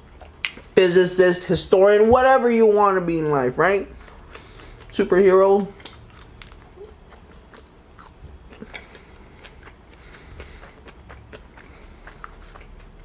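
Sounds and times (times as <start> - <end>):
person chewing food: 0.0 - 0.8, 4.0 - 13.0.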